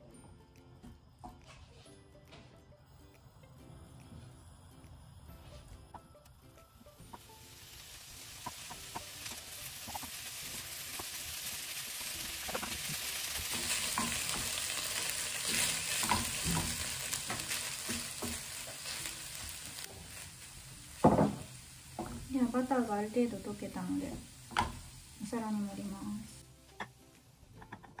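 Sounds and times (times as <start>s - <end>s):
rice sizzling in butter: 0.8s - 28.0s
spatula knocking on pan: 21.0s - 22.2s, 24.2s - 24.8s.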